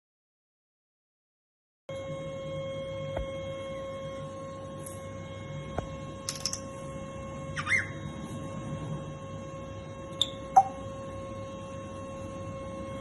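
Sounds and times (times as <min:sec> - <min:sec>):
steady hum: 0:01.9 - 0:13.0
parrot whistle: 0:07.5 - 0:08.1, 0:10.2 - 0:10.8.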